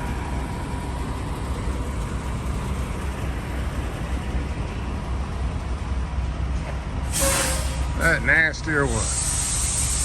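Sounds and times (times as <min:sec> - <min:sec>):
diesel truck engine idling: 0:00.0 - 0:10.0.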